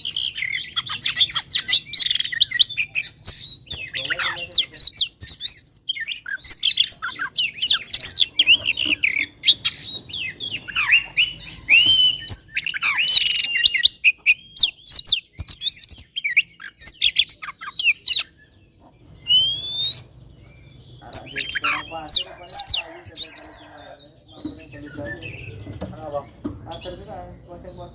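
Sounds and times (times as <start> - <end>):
bird singing whistles and chirps: 0.0 - 27.9
rising bird whistle: 9.5 - 17.3, 19.2 - 20.1.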